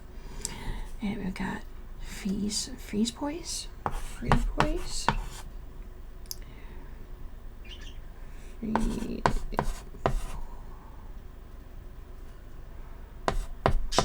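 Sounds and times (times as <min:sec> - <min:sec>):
chalk scratching on chalkboard: 0:03.8 - 0:05.5, 0:08.7 - 0:10.4, 0:13.3 - 0:14.0.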